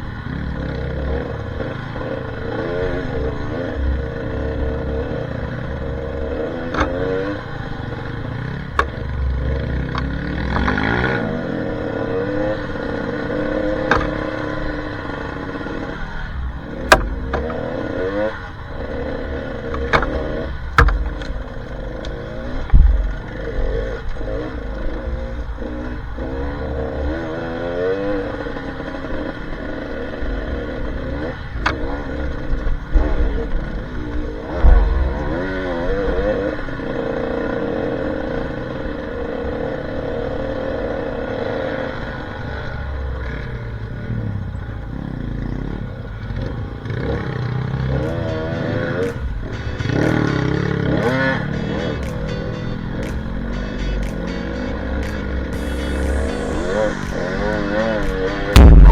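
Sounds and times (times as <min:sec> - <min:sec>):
dirt bike engine revving: 0:00.0 - 0:43.7, 0:45.1 - 0:58.9
bike knocking and clattering: 0:16.9 - 0:18.0, 0:19.7 - 0:23.6.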